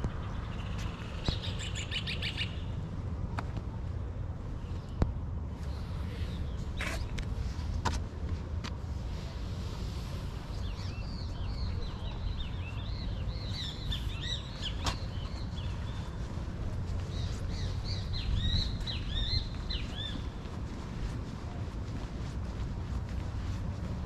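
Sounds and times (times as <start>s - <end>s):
small birds chirping: 0.0s - 2.8s, 10.4s - 20.5s
low outdoor rumble: 0.0s - 24.0s.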